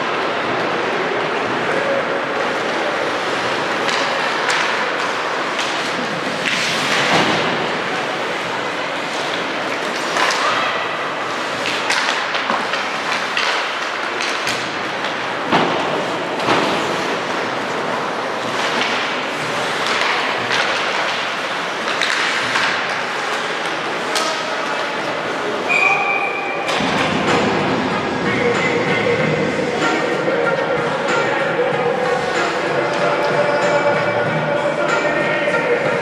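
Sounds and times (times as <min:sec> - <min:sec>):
crowd noise: 0:00.0 - 0:36.0
skating: 0:00.0 - 0:36.0
sticks and puck knocking: 0:11.6 - 0:16.7, 0:18.4 - 0:24.5
whistle blast: 0:25.7 - 0:26.6.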